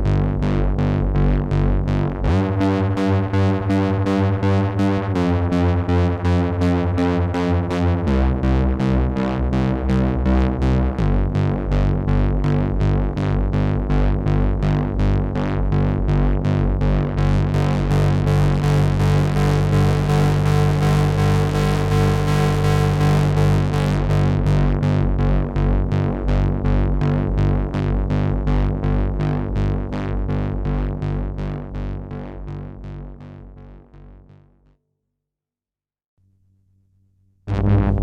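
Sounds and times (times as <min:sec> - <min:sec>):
pulsing synthesizer sequence: 0:37.5 - 0:38.0.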